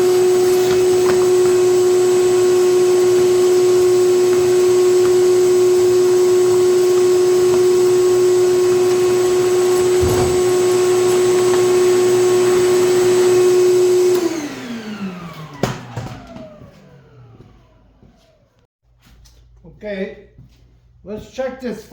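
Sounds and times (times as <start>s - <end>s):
shop vacuum motor whining: 0.0s - 18.6s.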